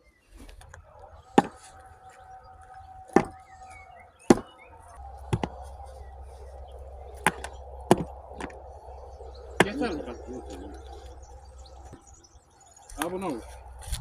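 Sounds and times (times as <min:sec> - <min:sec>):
faint steady hum: 0:00.0 - 0:14.0
sharp knocks of hard objects: 0:01.3 - 0:01.7, 0:03.1 - 0:03.5, 0:04.3 - 0:04.5, 0:05.3 - 0:05.7, 0:07.2 - 0:08.6.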